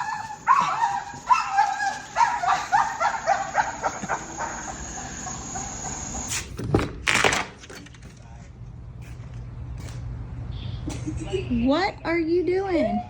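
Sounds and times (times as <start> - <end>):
dog yipping: 0.0 - 6.3.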